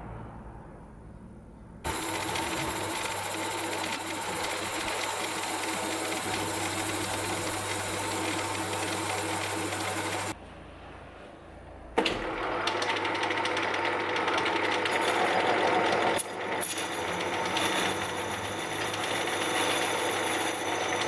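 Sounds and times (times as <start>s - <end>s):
workshop machine running: 1.8s - 21.0s
fast rhythmic pulsing: 1.9s - 10.3s.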